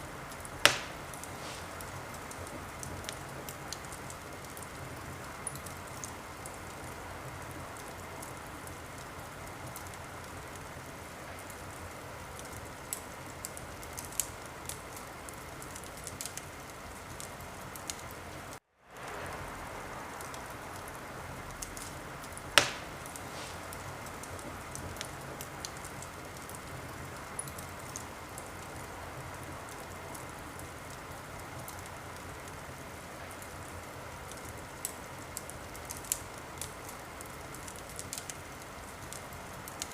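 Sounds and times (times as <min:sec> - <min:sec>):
wood fire crackling: 0:00.0 - 0:39.9
sharp loud pop of fire: 0:00.6 - 0:01.7, 0:22.6 - 0:23.7.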